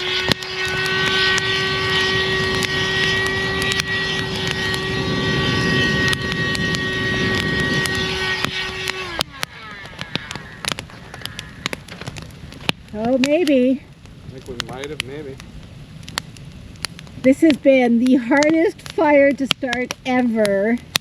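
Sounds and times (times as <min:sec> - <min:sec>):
electric blower whining: 0:00.0 - 0:12.3.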